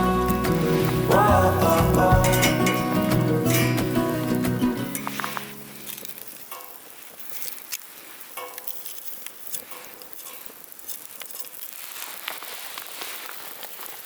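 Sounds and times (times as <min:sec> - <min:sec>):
fire crackling pops: 0:00.0 - 0:14.0
wood fire hissing: 0:00.0 - 0:14.0.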